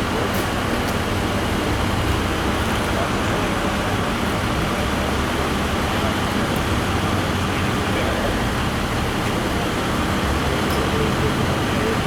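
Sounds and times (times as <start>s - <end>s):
road traffic rush: 0.0s - 12.0s.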